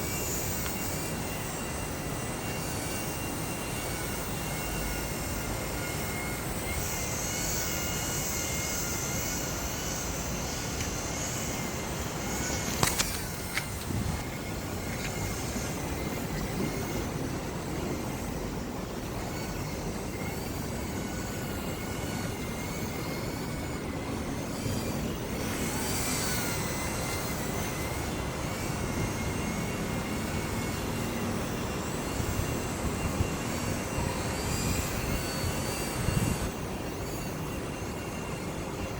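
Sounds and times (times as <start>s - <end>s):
model plane motor whining: 0.0s - 38.9s
wind noise on microphone: 0.0s - 38.9s
sharp click: 12.7s - 13.7s.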